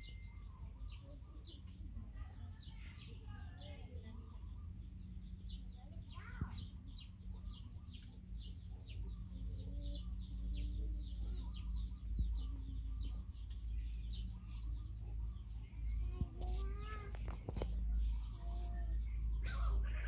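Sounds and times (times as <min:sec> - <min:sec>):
small birds chirping: 0:00.0 - 0:20.0
steady low rumble: 0:04.0 - 0:20.0
lower bird calls: 0:04.2 - 0:20.0.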